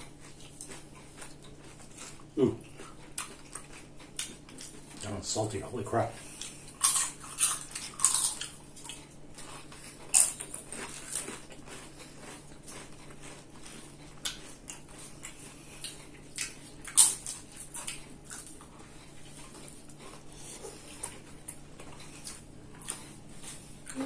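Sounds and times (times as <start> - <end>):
crunching tortilla chips: 6.4 - 23.1.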